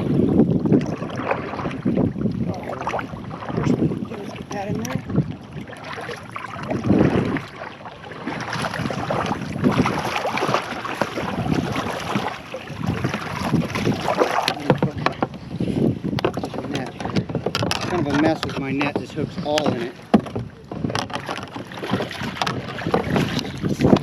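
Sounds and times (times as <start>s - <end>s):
water splashing and sloshing: 0.0s - 24.0s
wind buffeting microphone: 0.0s - 24.0s
knocking on kayak: 8.3s - 24.0s
gear clicking and rustling: 16.2s - 24.0s.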